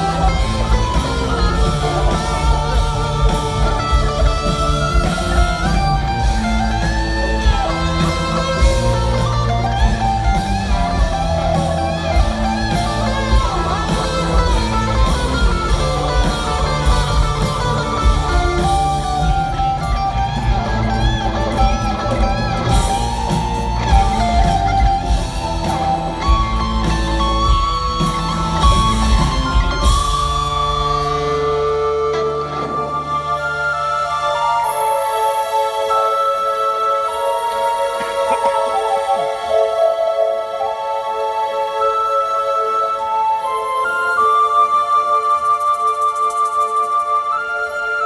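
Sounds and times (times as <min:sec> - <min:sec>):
steady bass: 0:00.0 - 0:34.0
lead guitar with bent notes: 0:00.0 - 0:48.0.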